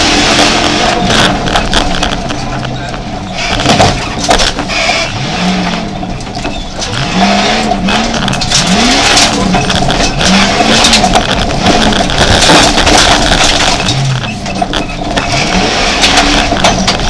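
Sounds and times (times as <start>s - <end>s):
car engine revving: 0.0s - 17.0s
knocks from jolting car: 3.4s - 4.7s, 8.1s - 17.0s.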